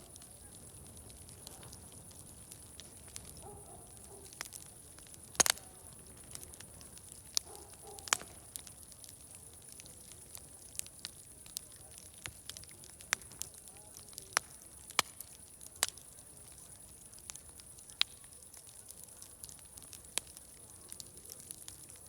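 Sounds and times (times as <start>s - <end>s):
distant voices murmuring: 0.0s - 8.7s
wood fire crackling and popping: 0.0s - 22.0s.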